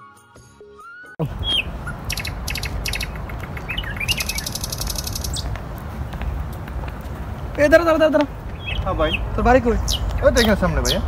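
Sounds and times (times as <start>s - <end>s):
flute music: 0.0s - 2.0s
small birds chirping: 1.2s - 11.0s.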